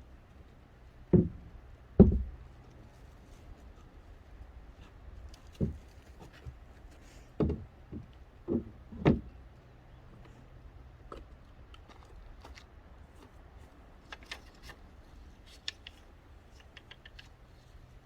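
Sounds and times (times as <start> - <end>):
dull knocks: 1.1 - 2.4, 5.6 - 5.9, 7.4 - 9.3.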